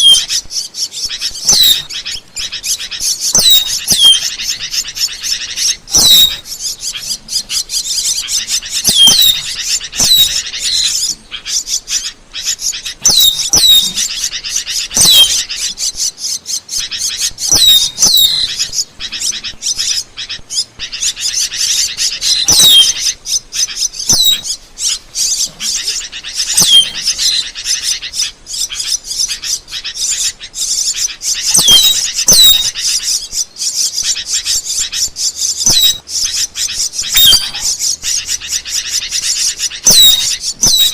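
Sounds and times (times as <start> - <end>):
starling chattering clicks and squeaks: 0.0 - 40.9
downward-sliding bird whistle: 8.8 - 11.0, 22.1 - 23.2, 37.0 - 37.9.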